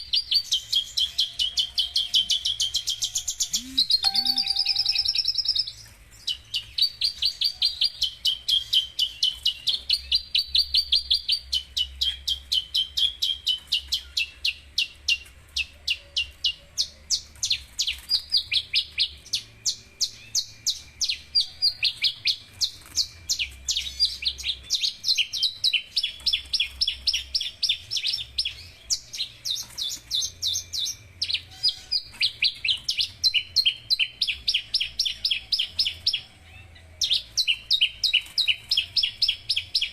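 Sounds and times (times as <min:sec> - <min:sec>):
bird chirping high: 0:00.0 - 0:39.9.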